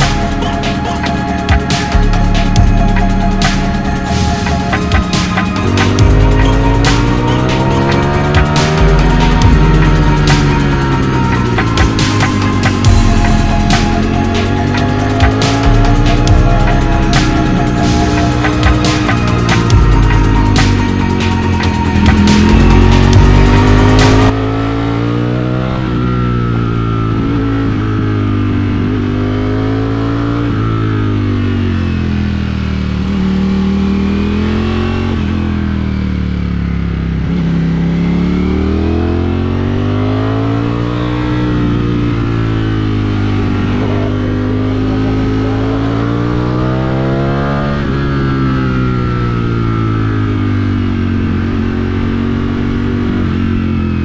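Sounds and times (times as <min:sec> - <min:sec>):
motorcycle engine revving: 0:00.0 - 0:54.0
wind and road noise: 0:17.2 - 0:54.0.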